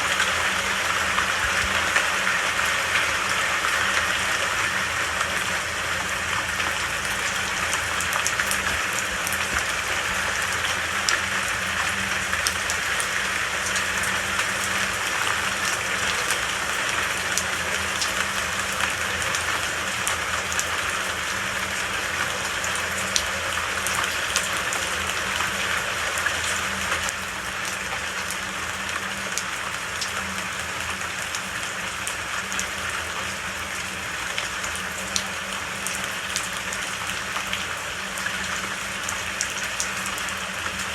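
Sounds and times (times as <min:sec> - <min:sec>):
raindrops ticking close by: 0:00.0 - 0:40.9
steady rain falling: 0:00.0 - 0:40.9.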